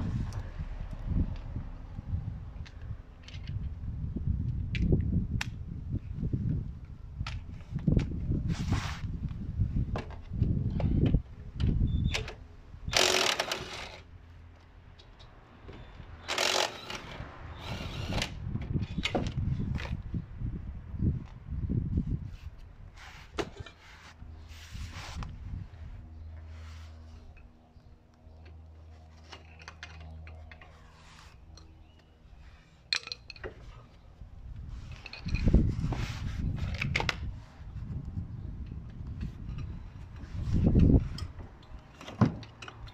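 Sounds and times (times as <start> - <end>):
hand tools clicking and clattering: 32.8 - 33.9.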